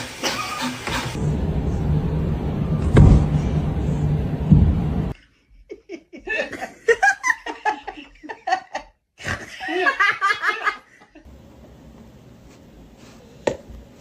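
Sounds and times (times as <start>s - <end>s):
low rumble: 1.1s - 5.2s
person laughing: 5.6s - 10.9s.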